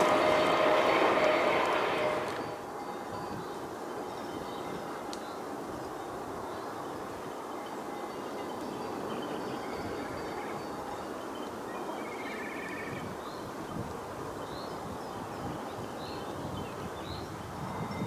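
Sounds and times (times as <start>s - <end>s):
outdoor background rush: 0.0s - 18.0s
small songbirds chirping: 3.2s - 18.0s.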